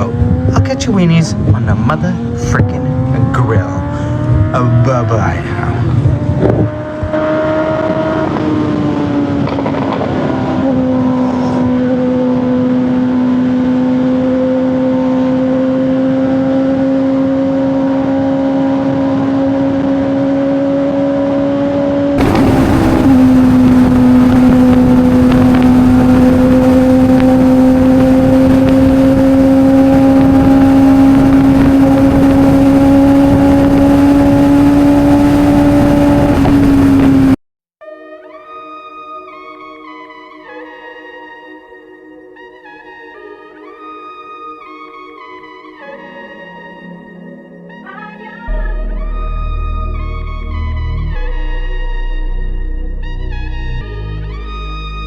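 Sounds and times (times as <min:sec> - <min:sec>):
wind rush: 0:00.0 - 0:11.8, 0:22.2 - 0:37.4
motorcycle engine running: 0:00.0 - 0:37.4.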